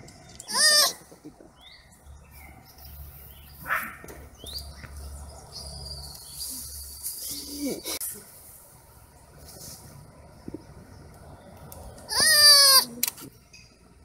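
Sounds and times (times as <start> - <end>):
birds chirping: 0.0 - 8.0.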